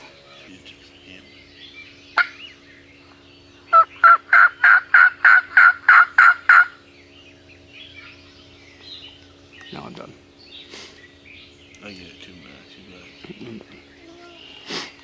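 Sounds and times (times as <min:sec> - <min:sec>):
turkey yelping: 0:02.1 - 0:02.6, 0:03.7 - 0:06.8.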